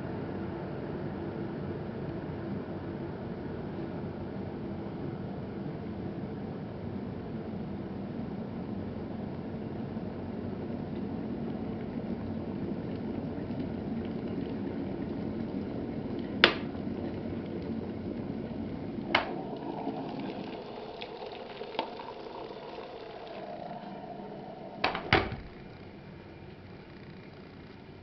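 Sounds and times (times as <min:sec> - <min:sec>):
electric kettle boiling: 0:00.0 - 0:28.0
kettle clicks: 0:16.2 - 0:16.8, 0:19.0 - 0:25.5.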